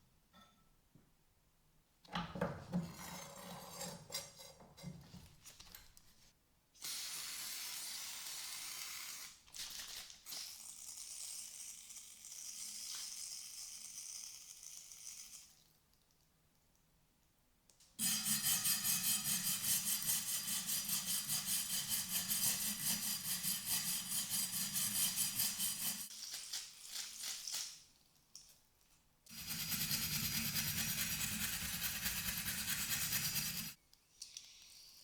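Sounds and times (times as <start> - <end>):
power tool running: 18.0 - 26.1, 29.3 - 33.8.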